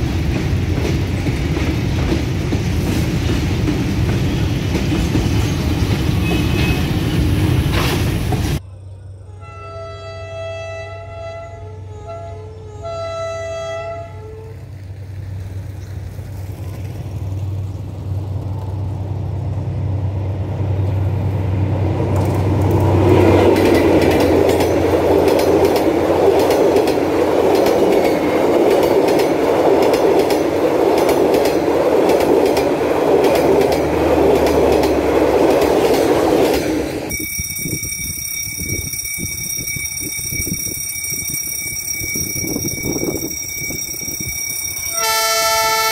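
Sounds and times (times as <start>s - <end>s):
train wheels clattering on rail: 0.0s - 8.6s, 21.8s - 45.9s
train horn blasts: 9.2s - 14.7s, 44.8s - 45.9s
diesel engine rumble: 14.6s - 37.1s.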